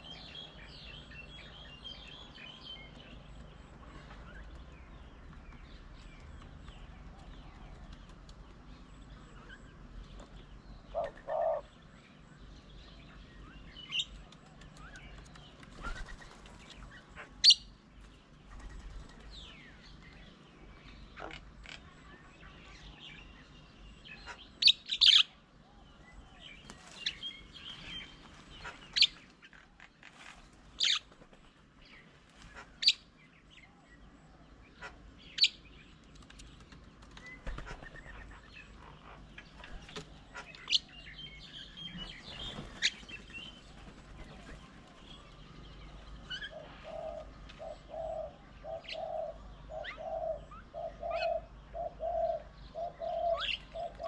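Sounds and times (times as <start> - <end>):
faint bird twittering: 0.0 - 54.0
small birds chirping: 0.0 - 54.0.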